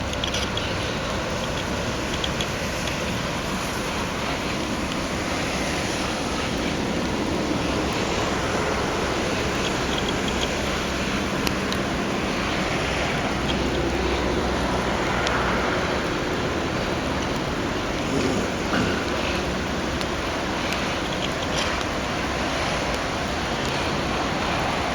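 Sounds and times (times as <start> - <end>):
freight train wheels on rails: 0.0 - 24.9.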